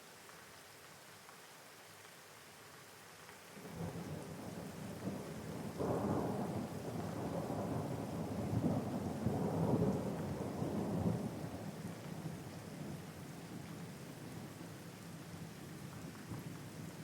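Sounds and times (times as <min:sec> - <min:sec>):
steady rain: 0:00.0 - 0:17.0
rolling thunder: 0:03.7 - 0:11.8.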